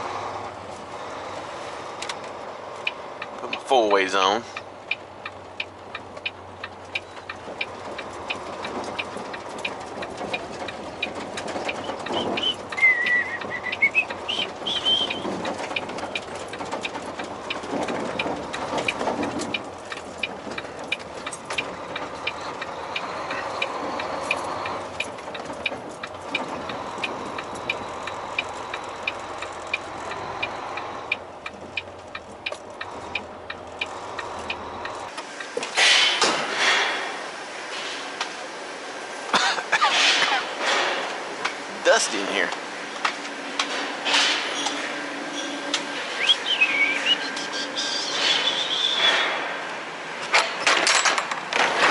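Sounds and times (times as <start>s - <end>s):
truck engine idling: 0.0s - 51.9s
hazard flasher relay ticking: 2.0s - 35.5s.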